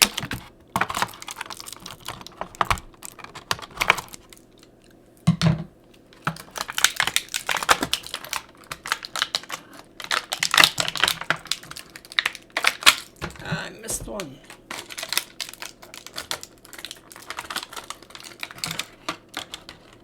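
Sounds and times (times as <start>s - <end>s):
plastic packaging clicks and rustles: 0.0s - 4.8s, 6.0s - 13.4s, 14.5s - 20.0s.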